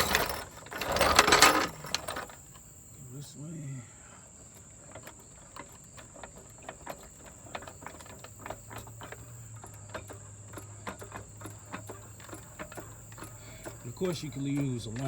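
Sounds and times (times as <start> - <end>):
crickets chirring: 0.0 - 15.0
hand ratchet clicking: 5.1 - 15.0.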